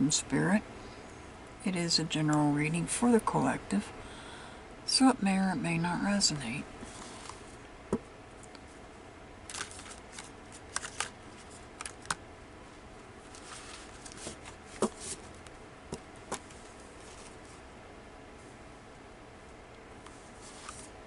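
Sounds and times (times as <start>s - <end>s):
cards being shuffled: 9.5s - 12.2s, 13.3s - 15.5s, 20.4s - 21.0s.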